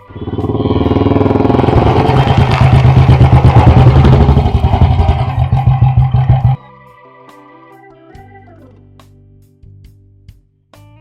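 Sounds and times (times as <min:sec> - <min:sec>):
motorcycle riding past: 0:00.0 - 0:06.6.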